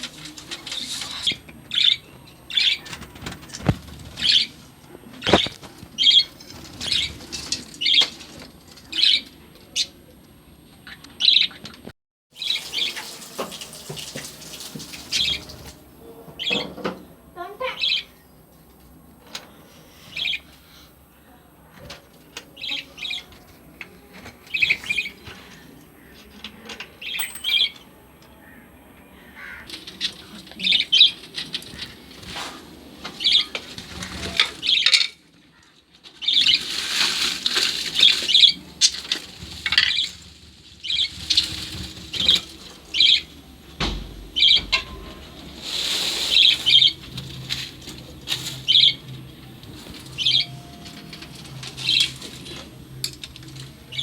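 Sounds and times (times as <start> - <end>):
lovebirds chirping: 0.4 - 10.0, 15.0 - 32.4, 40.8 - 54.0
wings flapping: 2.8 - 9.4, 36.2 - 54.0.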